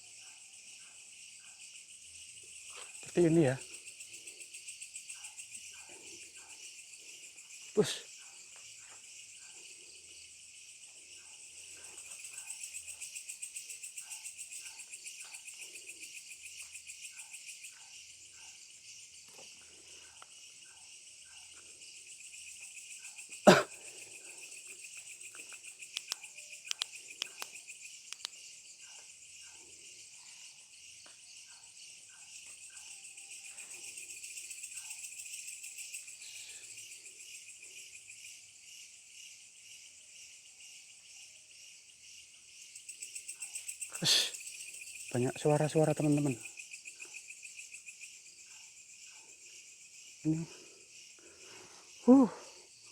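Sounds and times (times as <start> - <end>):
crickets and insects chirring: 0.0 - 52.9
light clicks: 25.9 - 28.4.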